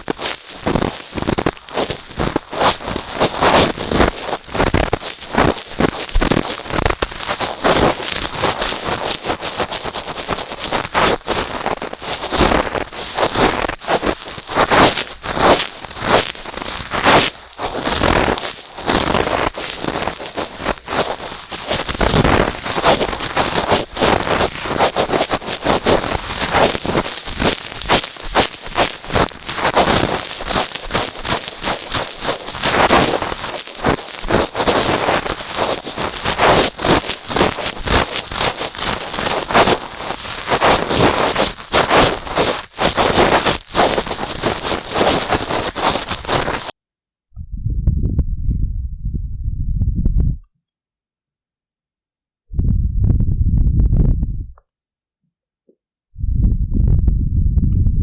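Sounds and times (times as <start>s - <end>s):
cotton swabs rubbing microphone: 1.8s - 46.7s.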